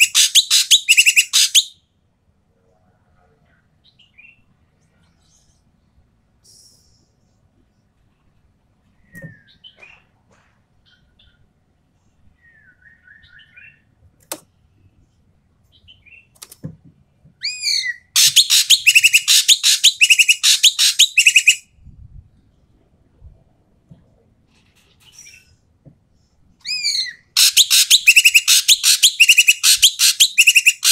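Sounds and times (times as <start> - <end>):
bird calling loud and harsh: 0.0 - 1.8, 17.4 - 21.7, 26.6 - 30.9.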